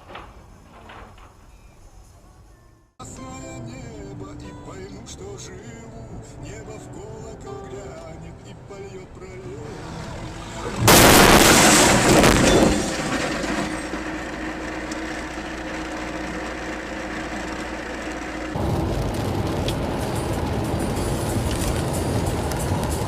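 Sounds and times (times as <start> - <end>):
vehicle engine and road noise: 4.0 - 23.0
vehicle crash: 9.6 - 23.0
glass breaking: 10.9 - 14.3.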